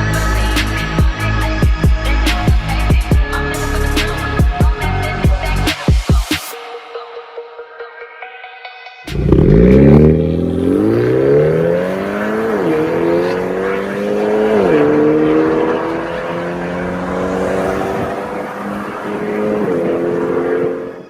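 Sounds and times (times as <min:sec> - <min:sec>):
car exhaust accelerating: 0:09.1 - 0:20.9.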